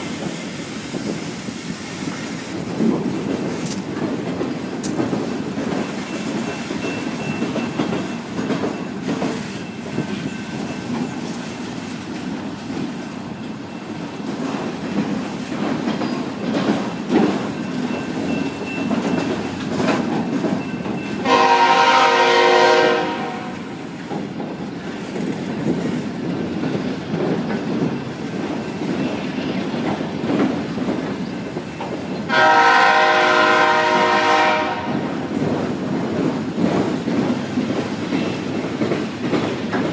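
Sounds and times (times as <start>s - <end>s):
train wheels clattering on rails: 0.0s - 39.9s
locomotive air horn blasts: 21.2s - 23.6s, 32.3s - 35.0s.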